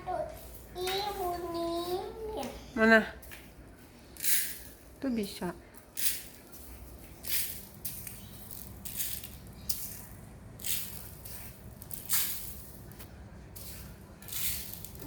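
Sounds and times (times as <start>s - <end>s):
dry rice rattling: 6.0s - 15.0s.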